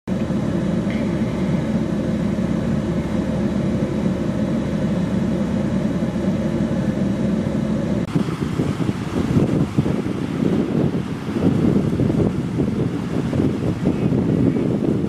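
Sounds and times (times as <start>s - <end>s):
strong wind roaring on microphone: 0.1s - 15.0s.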